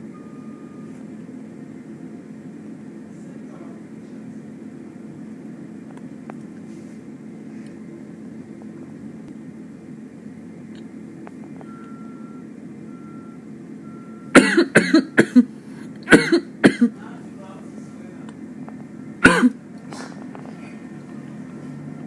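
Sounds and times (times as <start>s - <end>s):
faint beeps: 0.0s - 1.1s, 11.6s - 14.3s
vehicle traffic rumble: 0.0s - 22.0s
person coughing: 14.3s - 15.5s, 16.1s - 17.0s, 19.2s - 20.2s.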